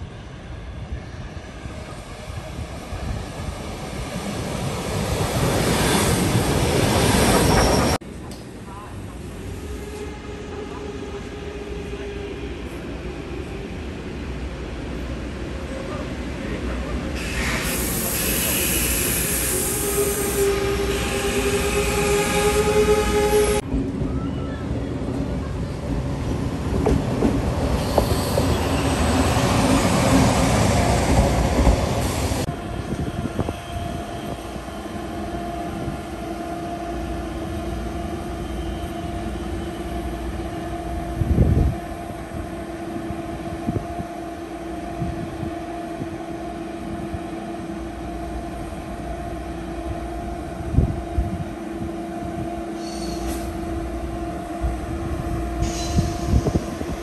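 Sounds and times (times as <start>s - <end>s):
diesel railcar rumble: 0.0s - 57.0s
electric train whine: 17.2s - 23.7s.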